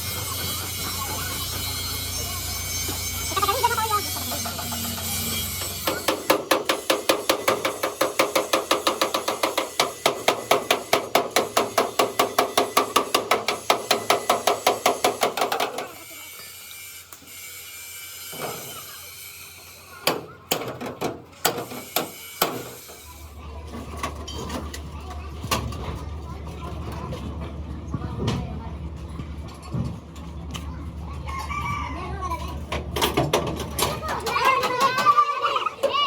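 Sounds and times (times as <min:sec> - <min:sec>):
hammer beating on metal: 0:04.8 - 0:16.0.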